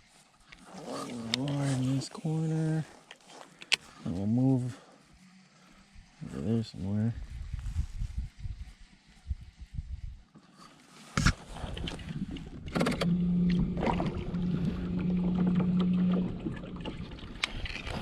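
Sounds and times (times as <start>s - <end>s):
water along a hull: 0.0s - 18.0s
steady low hum: 11.2s - 18.0s.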